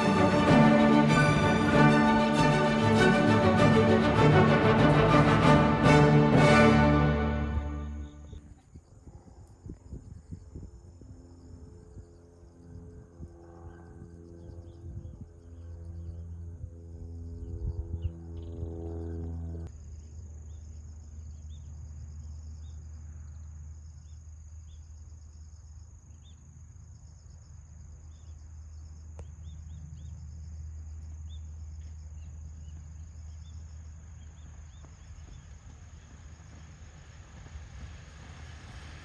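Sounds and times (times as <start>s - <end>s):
music: 0.0s - 8.4s.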